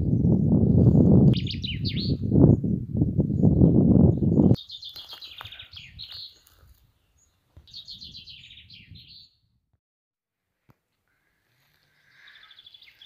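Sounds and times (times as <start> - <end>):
songbird trilling: 1.4 - 2.2.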